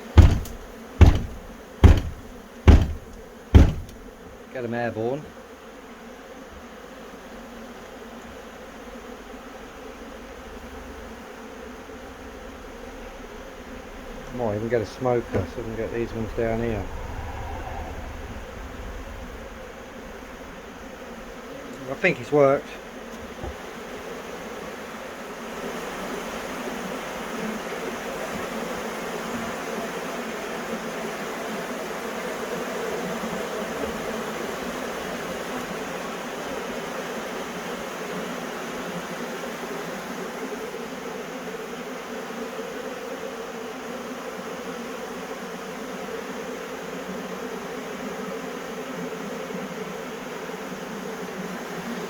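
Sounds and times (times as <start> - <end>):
bee swarm buzzing: 0.0 - 4.3, 19.2 - 30.1, 41.4 - 52.0
honey bees buzzing: 0.0 - 4.3.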